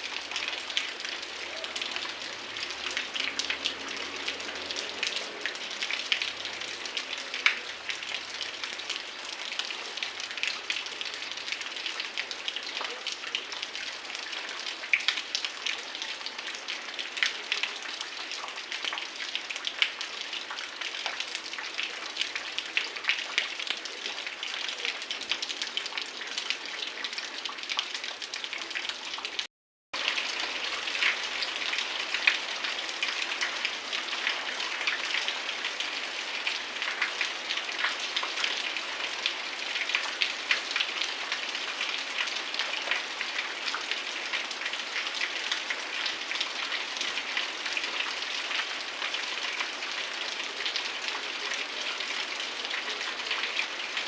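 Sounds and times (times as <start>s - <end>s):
heavy rain falling: 0.0s - 9.4s, 30.0s - 54.0s.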